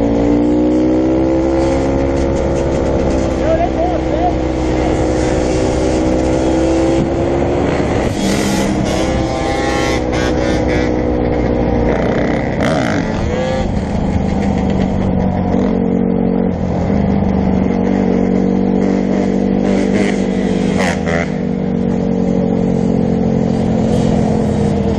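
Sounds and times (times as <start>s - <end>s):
dirt bike engines revving: 0.0s - 24.9s.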